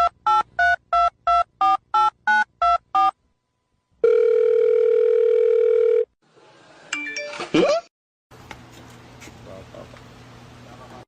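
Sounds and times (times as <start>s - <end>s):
telephone ringback tone: 4.0s - 6.1s.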